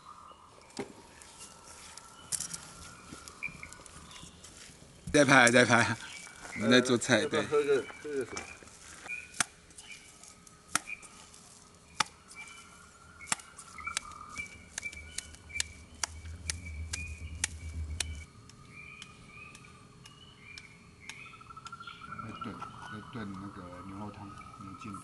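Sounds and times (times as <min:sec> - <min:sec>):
wood fire crackling: 0:00.6 - 0:21.8
low rumble: 0:14.2 - 0:19.0.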